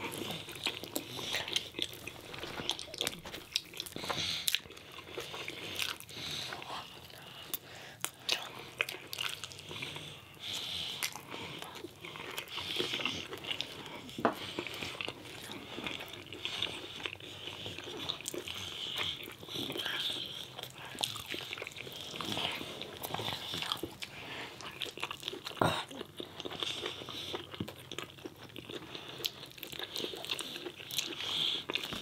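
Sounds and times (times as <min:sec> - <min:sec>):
person chewing crunchy food: 0:00.0 - 0:32.0.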